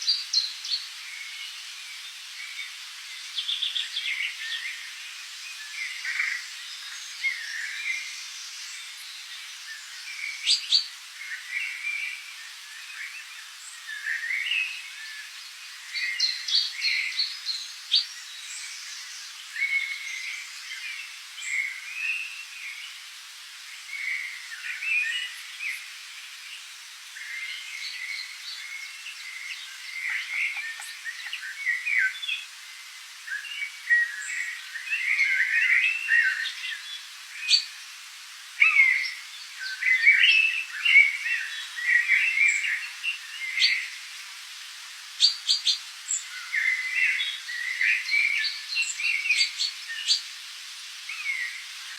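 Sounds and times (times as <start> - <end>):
faint steady hiss: 0.0 - 51.9
birds calling and chirping: 27.2 - 32.5.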